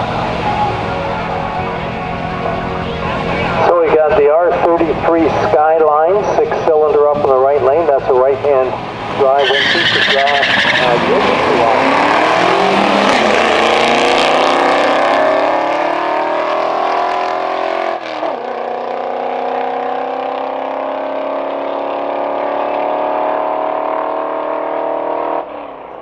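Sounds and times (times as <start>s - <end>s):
race cars accelerating hard: 7.7s - 26.0s.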